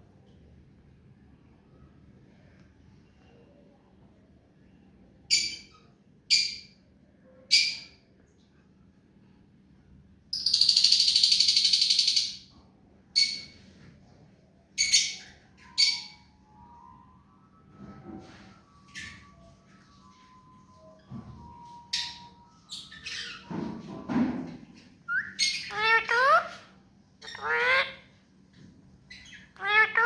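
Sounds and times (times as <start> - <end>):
parrot calling: 25.1 - 26.6, 27.2 - 28.1, 29.1 - 30.0.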